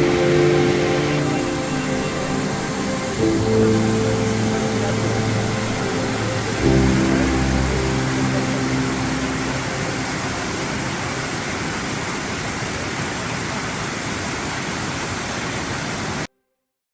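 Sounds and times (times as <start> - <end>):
closing music: 0.0 - 11.5
waterfall roaring: 0.0 - 16.3.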